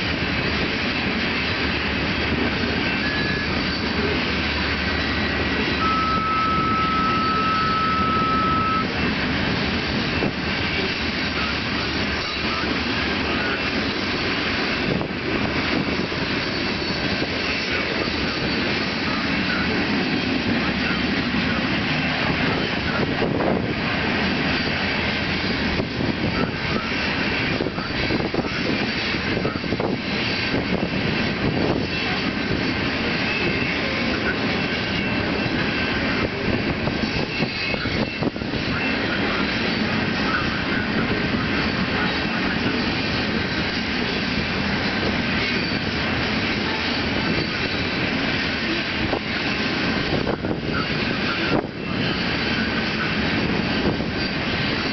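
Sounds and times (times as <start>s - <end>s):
train wheels rumbling on rails: 0.0s - 54.9s.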